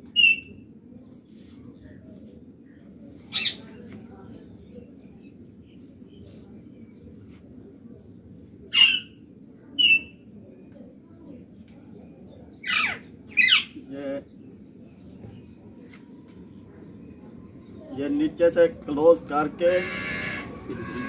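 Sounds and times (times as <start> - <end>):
bird squawking: 19.6 - 21.0.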